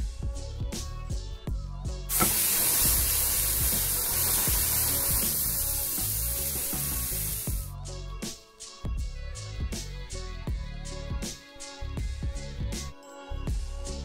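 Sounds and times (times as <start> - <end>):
background music: 0.0 - 14.0
meatballs sizzling in skillet: 2.1 - 7.7.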